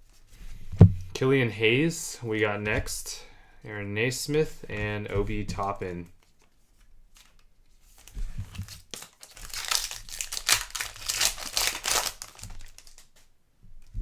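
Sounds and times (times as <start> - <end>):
plastic wrapper tearing and crinkling: 7.1 - 13.3.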